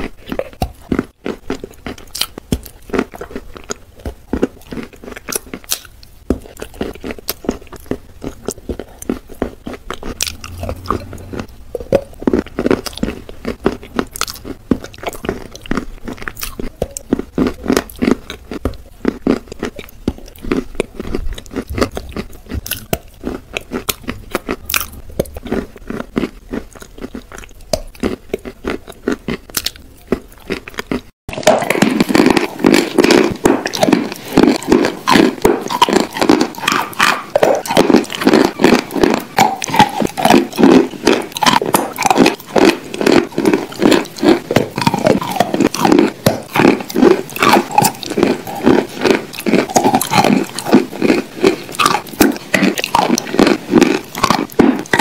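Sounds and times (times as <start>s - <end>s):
chewing crunchy chalk: 0.0s - 55.0s.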